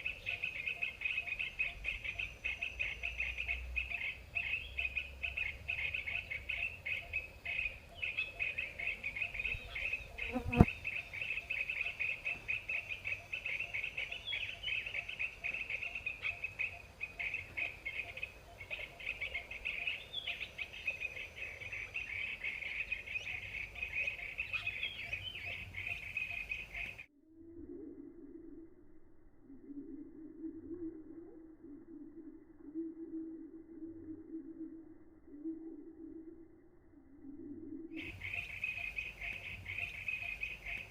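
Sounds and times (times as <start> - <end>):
insects trilling: 0.0 - 25.2
bird chirps: 0.0 - 27.1, 37.1 - 40.9
low steady hum: 0.0 - 40.9.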